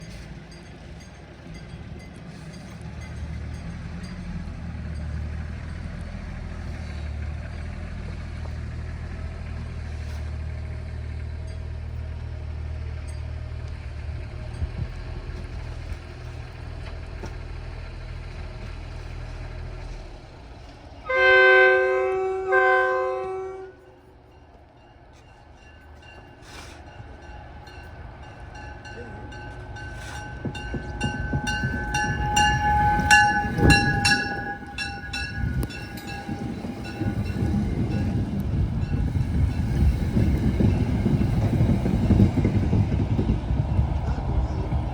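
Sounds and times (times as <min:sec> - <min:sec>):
train rumbling: 0:00.0 - 0:44.9
train horn blasts: 0:21.0 - 0:24.2, 0:29.1 - 0:38.0.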